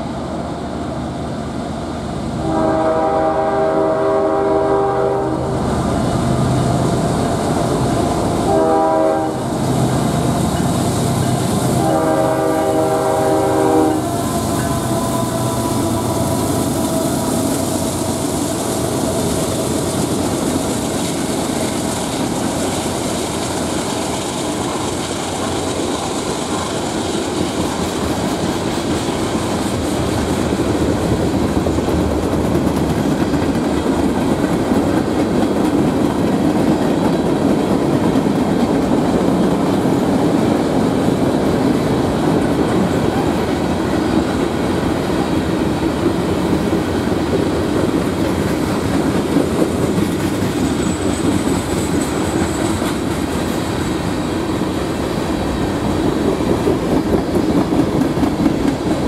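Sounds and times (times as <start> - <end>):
train horn chord: 2.4 - 5.6, 8.4 - 9.6, 11.1 - 19.0.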